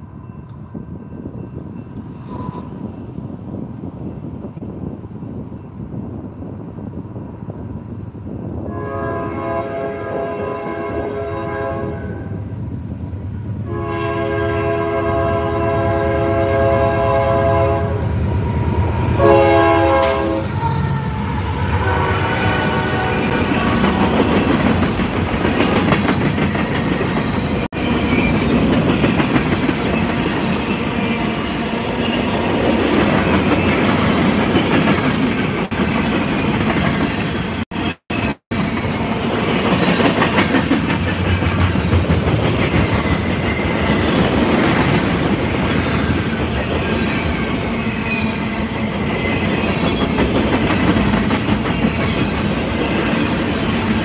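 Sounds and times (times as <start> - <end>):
freight train rumble: 0.0 - 54.0
locomotive horn blast: 8.7 - 12.4, 13.6 - 24.2
train wheels clacking over joints: 23.3 - 31.5, 39.6 - 54.0.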